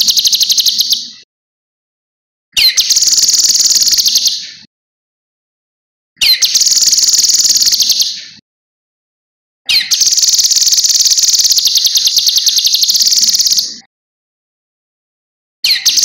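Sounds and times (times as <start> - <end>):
bird singing rapid trills: 0.0 - 1.2, 2.6 - 4.5, 6.2 - 8.4, 9.7 - 13.9, 15.6 - 16.0.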